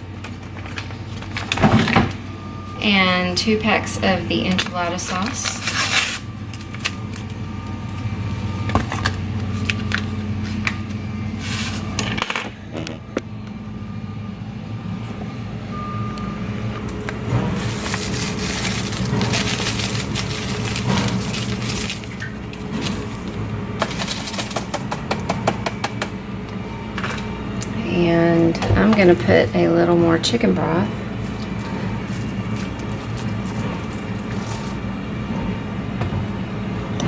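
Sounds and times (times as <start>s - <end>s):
steady low hum: 0.0s - 37.0s
packets rustling: 16.9s - 25.0s, 31.0s - 35.0s.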